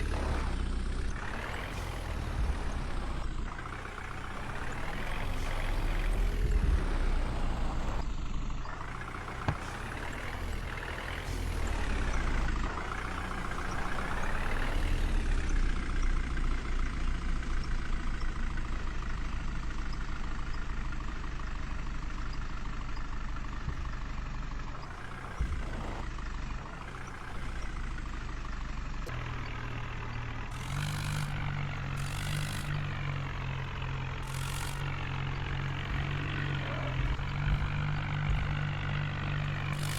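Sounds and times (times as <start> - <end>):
deeper engine tone: 0.0 - 39.9
diesel engine revving: 0.0 - 39.9.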